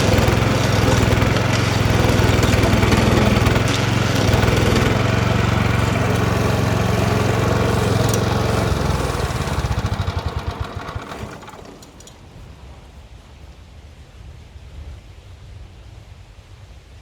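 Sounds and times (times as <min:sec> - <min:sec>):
stump grinder engine running: 0:00.0 - 0:12.4.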